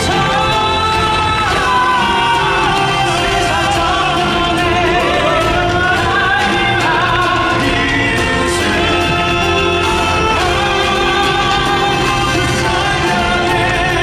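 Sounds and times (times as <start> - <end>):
band accompaniment: 0.0 - 14.0
men singing: 0.0 - 14.0.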